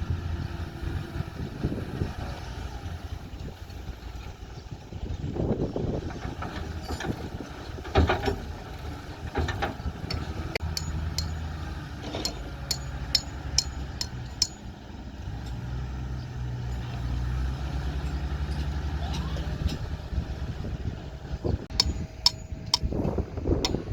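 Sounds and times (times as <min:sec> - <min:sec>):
heavy engine running: 0:00.0 - 0:23.9
sharp metallic clanks: 0:09.4 - 0:14.8, 0:21.7 - 0:23.9.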